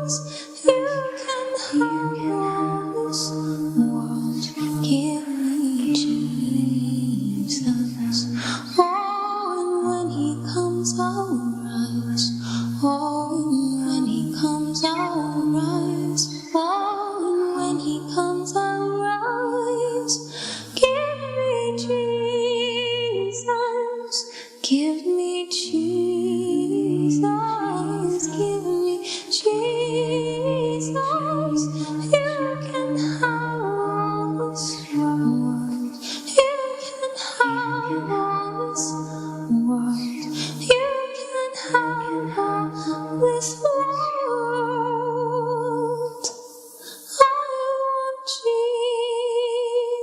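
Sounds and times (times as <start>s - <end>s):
a cappella hymn singing: 0.0s - 50.0s
breaths: 0.3s - 0.6s, 8.2s - 8.8s, 12.3s - 12.8s, 20.2s - 20.8s, 24.2s - 24.6s, 29.0s - 29.3s, 35.9s - 36.3s, 40.2s - 40.6s, 46.4s - 47.2s.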